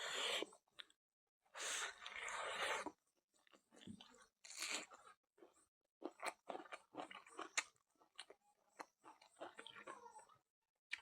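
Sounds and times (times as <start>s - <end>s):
person chewing food: 2.0s - 10.0s.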